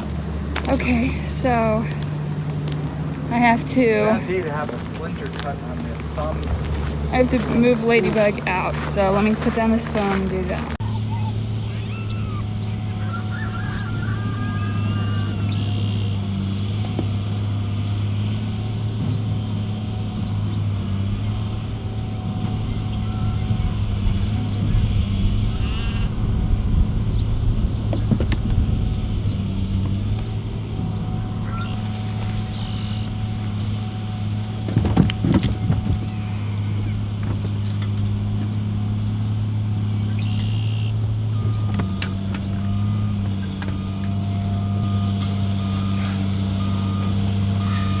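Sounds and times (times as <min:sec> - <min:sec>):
engine running steadily: 0:00.0 - 0:48.0.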